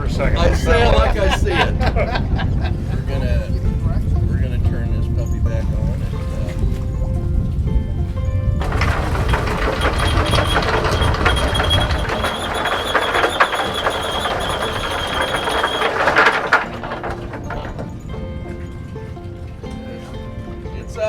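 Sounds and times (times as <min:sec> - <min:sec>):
windlass motor whining: 0:00.0 - 0:21.0
chain clattering: 0:08.6 - 0:19.7.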